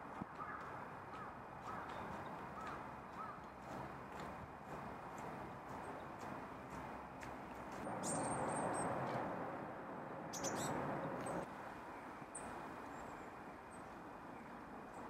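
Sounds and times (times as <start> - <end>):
small birds chirping: 7.9 - 9.1, 10.3 - 11.5.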